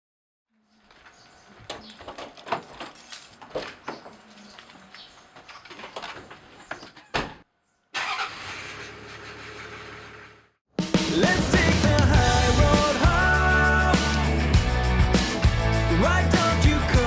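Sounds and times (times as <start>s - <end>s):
car engine starting and running: 8.0s - 10.5s.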